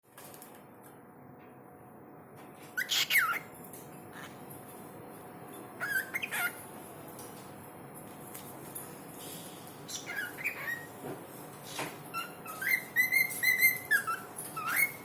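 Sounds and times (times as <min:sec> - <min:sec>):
pet bird squawking: 0:02.8 - 0:03.5, 0:05.8 - 0:06.6, 0:09.9 - 0:10.9.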